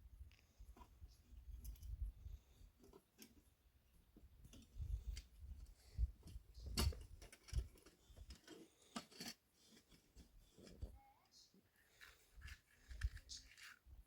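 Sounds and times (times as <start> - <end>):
clicks and knocks of handling: 6.2 - 10.9.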